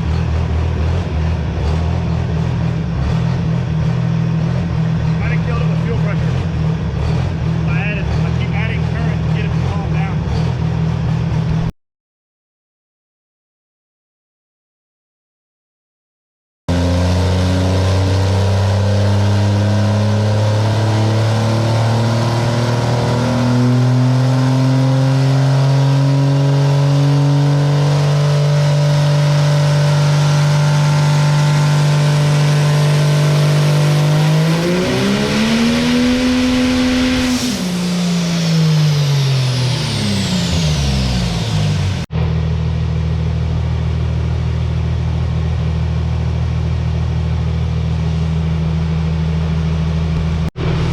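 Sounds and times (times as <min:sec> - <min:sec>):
diesel truck engine running hard: 0:00.0 - 0:11.7, 0:16.7 - 0:50.9
high whine: 0:31.6 - 0:43.4, 0:49.4 - 0:50.9.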